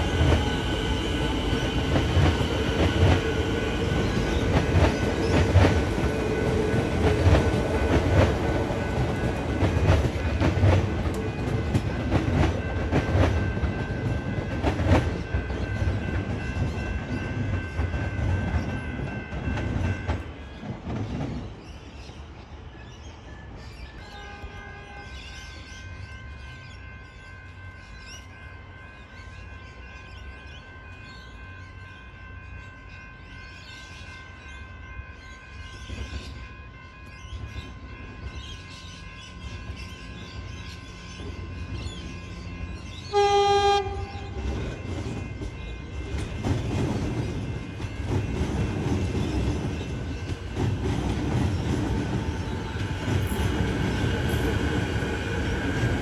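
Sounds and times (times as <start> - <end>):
train rumble and wheel clatter: 0.0 - 56.0
train horn blast: 24.0 - 27.7, 40.7 - 48.9.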